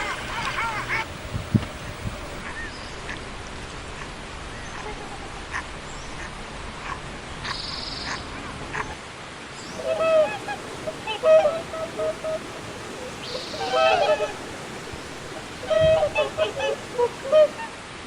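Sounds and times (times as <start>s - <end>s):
waterfowl honking calls: 0.0s - 3.2s, 9.7s - 17.8s
background hiss: 0.0s - 18.0s.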